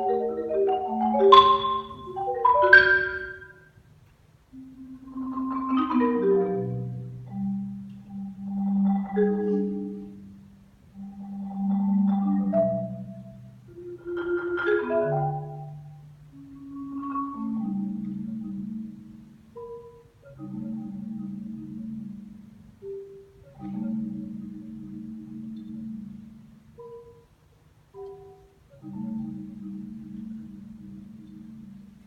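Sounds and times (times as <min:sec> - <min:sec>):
solo marimba playing: 0:00.0 - 0:03.8, 0:04.5 - 0:32.0.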